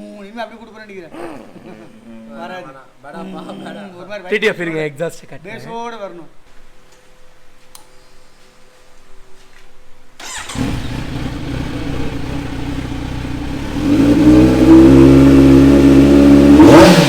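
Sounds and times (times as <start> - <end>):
motorcycle engine revving: 10.2 - 17.0
motorcycle engine starting and idling: 10.2 - 17.0.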